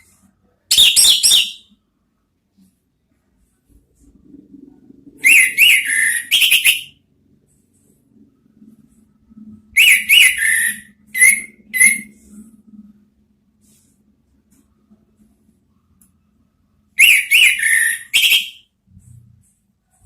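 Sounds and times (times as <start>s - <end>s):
faint low hum: 0.0s - 20.0s
bird whistled song: 0.7s - 1.8s, 5.2s - 7.0s, 9.8s - 12.2s, 17.0s - 18.7s.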